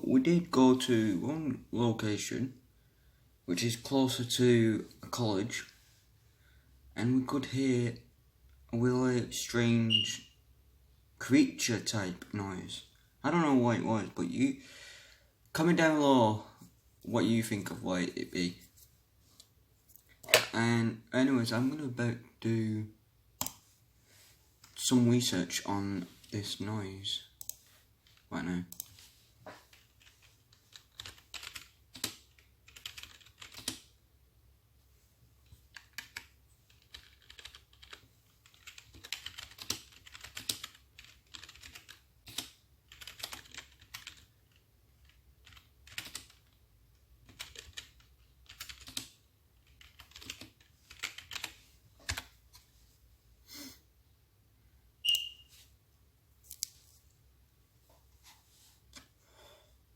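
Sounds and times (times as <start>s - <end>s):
typing on computer keyboard: 29.7s - 33.9s, 35.7s - 46.6s, 47.2s - 52.3s.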